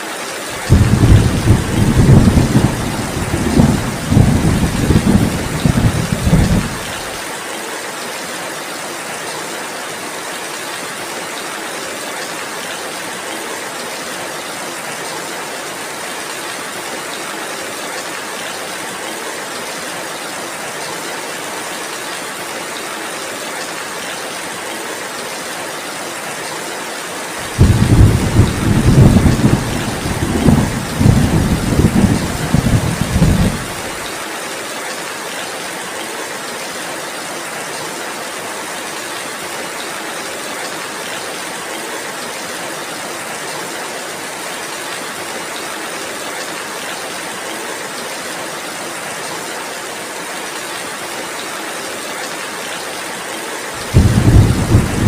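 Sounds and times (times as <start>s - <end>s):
heavy rain falling: 0.0s - 55.0s
thunder rumbling: 0.6s - 7.1s, 27.4s - 34.0s, 53.8s - 55.0s.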